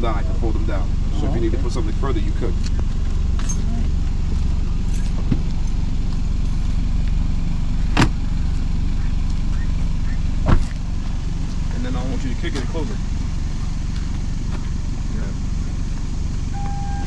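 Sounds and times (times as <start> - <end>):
car engine rumble: 0.0 - 17.0.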